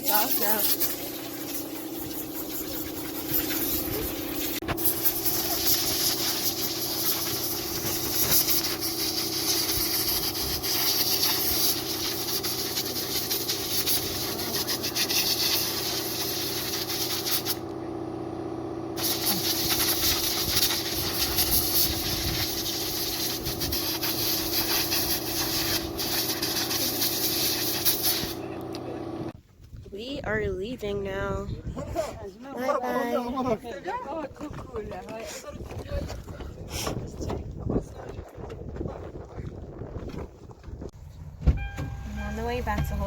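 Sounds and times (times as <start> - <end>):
compressed air hissing: 0.0 - 17.6, 19.0 - 28.5
motor hum: 0.0 - 29.4.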